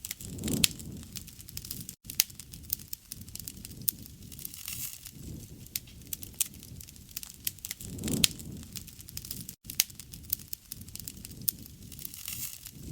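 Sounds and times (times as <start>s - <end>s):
wood fire crackling and popping: 0.0s - 12.9s.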